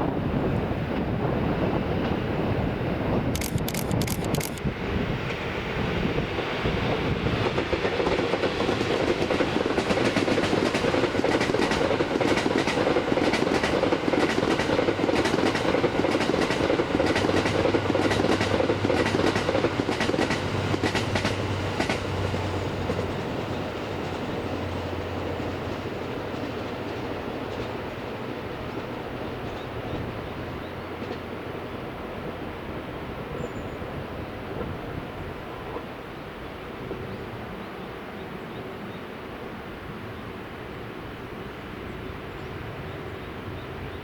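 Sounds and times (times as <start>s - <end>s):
train passing at speed: 0.0s - 44.0s
wheels clicking over rail joints: 7.5s - 24.4s.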